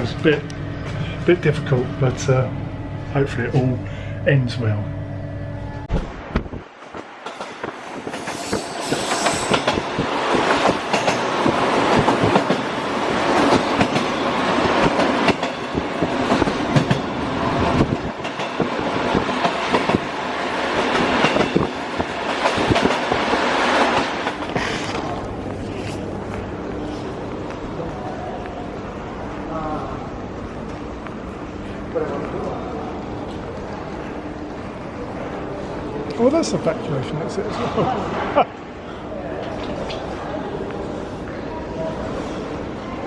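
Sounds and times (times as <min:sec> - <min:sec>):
train wheels clattering on rails: 0:06.3 - 0:25.3.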